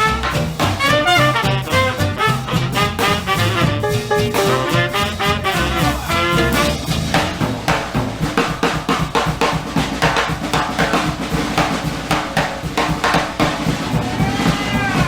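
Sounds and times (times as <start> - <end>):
low bass line: 0.0 - 7.7
drum kit break: 0.0 - 15.0.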